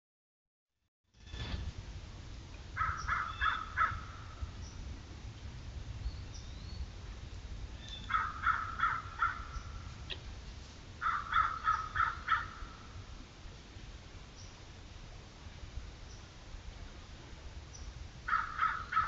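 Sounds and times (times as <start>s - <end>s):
bird calling: 2.8s - 4.8s, 7.8s - 10.2s, 11.0s - 12.9s, 17.7s - 19.0s.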